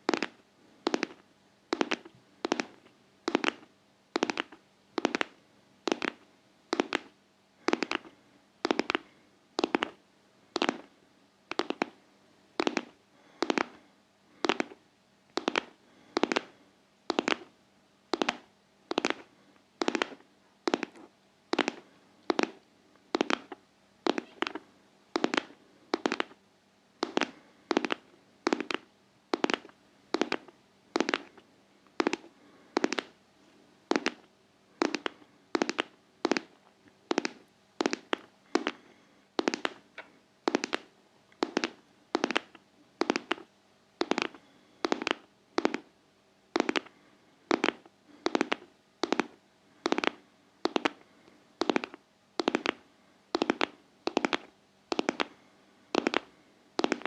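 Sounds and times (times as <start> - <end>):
crisp rhythmic tapping: 0.0 - 10.0, 11.5 - 12.0, 12.6 - 17.5, 18.1 - 24.6, 25.2 - 26.4, 27.0 - 33.2, 33.9 - 45.9, 46.6 - 46.9, 47.5 - 51.0, 51.6 - 57.0.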